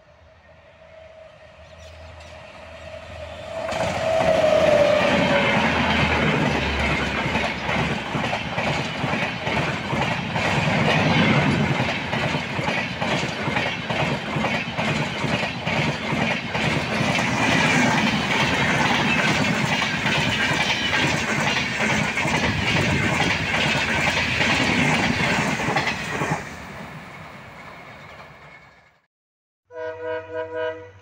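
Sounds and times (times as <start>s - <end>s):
train coaches rushing past: 0.0s - 29.1s
wheels clacking over rail joints: 3.5s - 26.5s
train horn: 29.7s - 31.0s.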